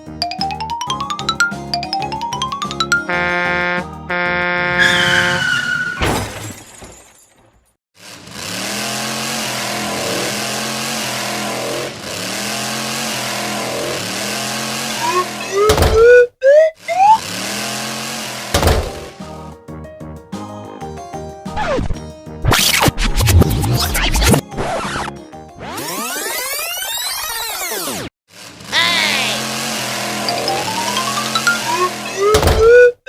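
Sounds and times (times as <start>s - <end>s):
cartoon musical jingle: 0.2s - 4.8s, 30.2s - 33.0s
toy vehicle engine effect: 8.0s - 19.2s, 22.5s - 33.0s.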